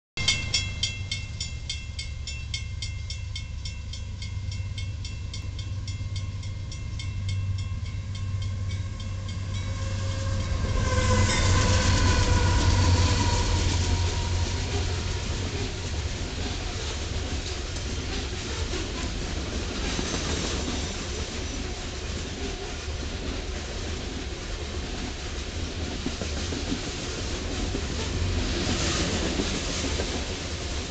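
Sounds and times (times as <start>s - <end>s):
crossing bell ringing: 0.2s - 16.4s
diesel locomotive engine rumble: 0.2s - 30.9s
freight cars rolling on rails: 0.2s - 30.9s.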